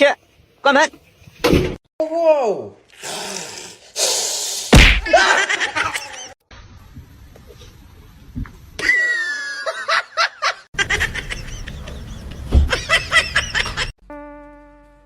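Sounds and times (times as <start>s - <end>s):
people laughing: 5.0s - 6.4s, 8.8s - 13.9s.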